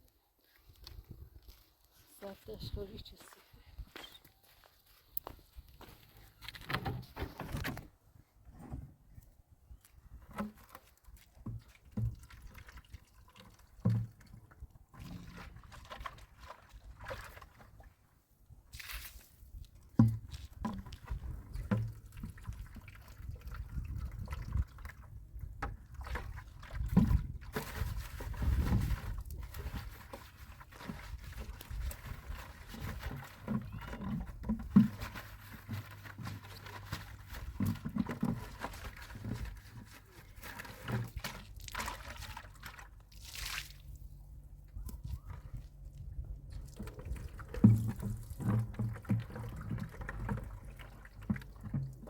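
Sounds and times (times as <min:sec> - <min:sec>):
water pouring and trickling: 0:10.3 - 0:17.8, 0:20.6 - 0:25.2, 0:25.8 - 0:43.8, 0:46.5 - 0:52.0.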